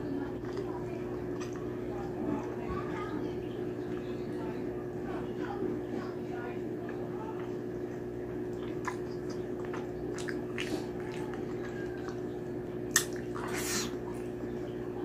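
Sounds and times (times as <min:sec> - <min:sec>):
person chewing: 0:00.3 - 0:01.8, 0:08.4 - 0:14.4
sharp bite: 0:12.9 - 0:14.0
wet mouth clicks and smacks: 0:12.9 - 0:14.0.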